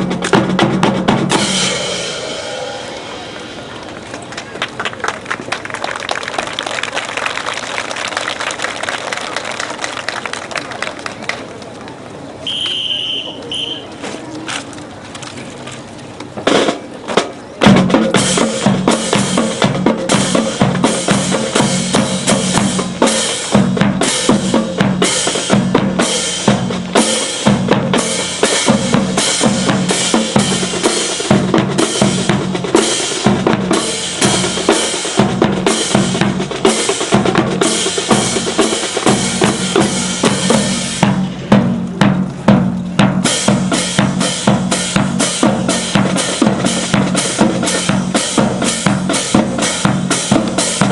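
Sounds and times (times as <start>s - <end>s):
drum-heavy music: 0.0s - 3.7s, 16.4s - 50.9s.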